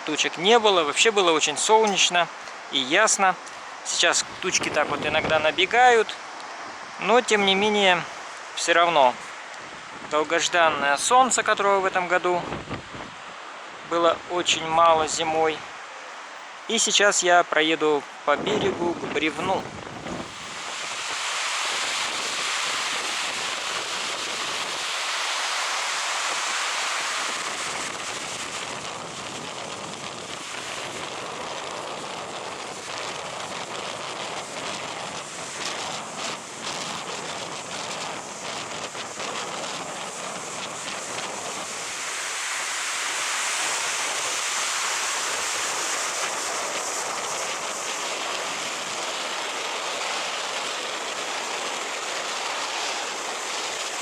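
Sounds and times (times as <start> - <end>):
surf rushing on a beach: 0.0 - 54.0
wind buffeting the microphone: 3.1 - 7.0, 9.2 - 15.7, 18.3 - 42.4.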